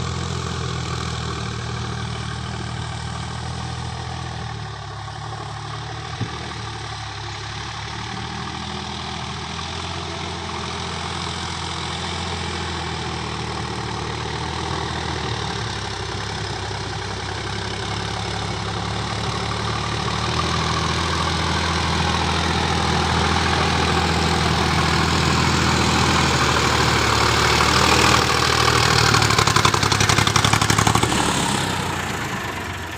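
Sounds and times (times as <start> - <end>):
tractor diesel engine running: 0.0 - 32.9.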